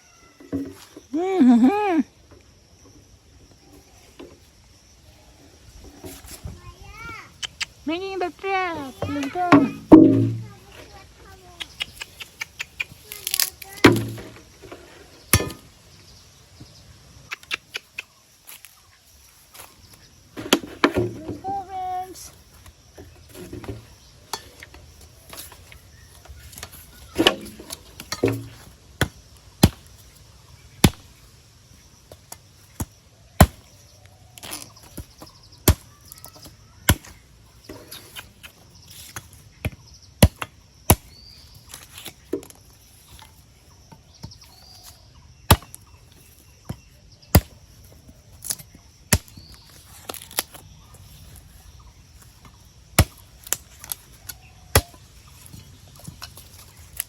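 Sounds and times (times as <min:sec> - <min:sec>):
sharp chopping knocks: 0:09.0 - 0:10.5, 0:13.8 - 0:14.4.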